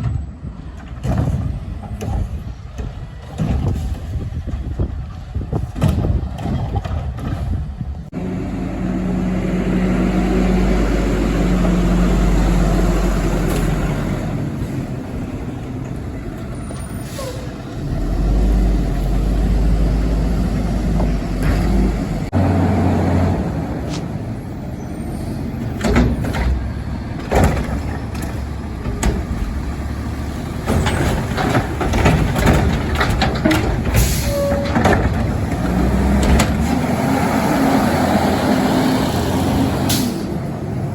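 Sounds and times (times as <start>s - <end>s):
metal knocks and clatter: 0.0s - 7.8s, 25.8s - 29.8s, 30.5s - 36.7s
garbage truck diesel engine: 0.0s - 40.9s.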